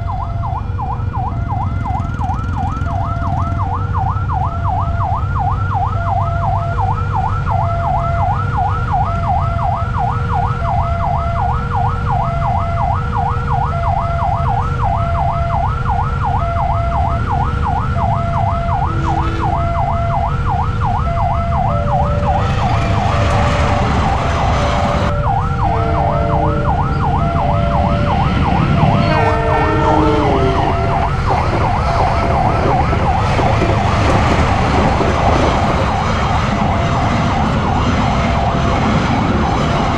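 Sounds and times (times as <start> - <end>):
idling engines rumble: 0.0 - 5.4, 17.1 - 39.9
warbling crossing warning siren: 0.0 - 39.9
loud rushing noise: 22.0 - 39.9
short horn notes: 28.9 - 31.1.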